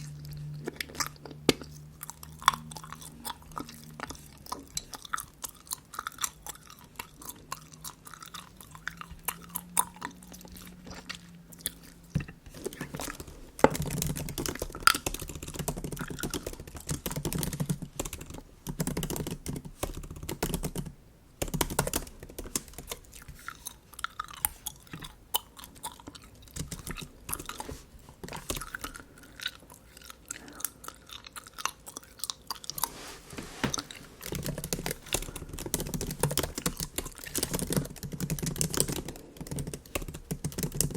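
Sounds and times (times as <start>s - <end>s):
gum chewing wet smacks: 0.0s - 17.6s, 22.5s - 32.9s, 33.7s - 40.0s.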